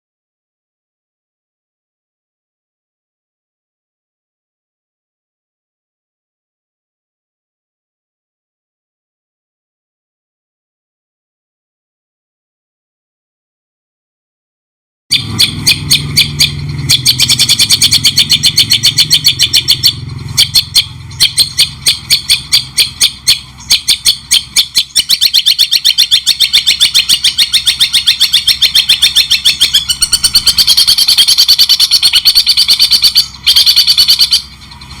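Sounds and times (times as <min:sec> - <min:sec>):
songbird chattering: 0:15.1 - 0:35.0.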